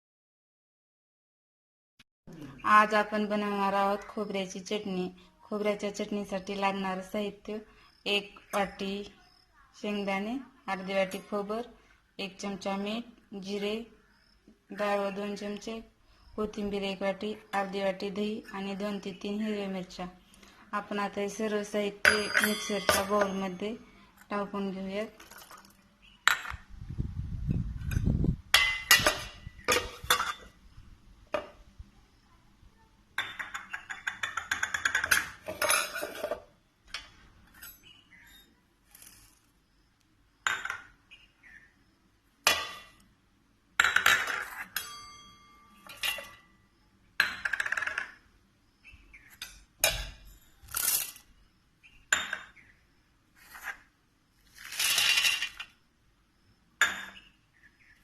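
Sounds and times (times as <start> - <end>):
utensils clinking against jar: 44.0 - 46.5.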